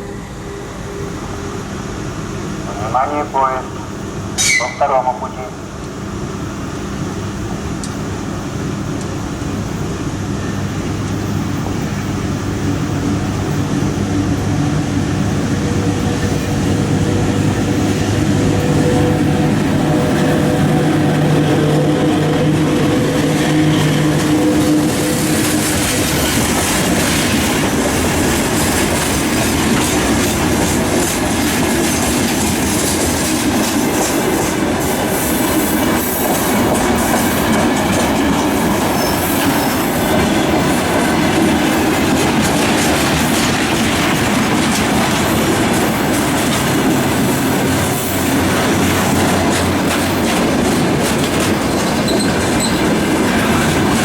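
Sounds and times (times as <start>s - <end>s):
steady hum: 0.0s - 25.0s
train wheel squeal: 4.4s - 4.8s, 10.3s - 11.0s, 38.8s - 40.6s, 51.7s - 54.0s
wheels clattering over rail joints: 39.6s - 54.0s.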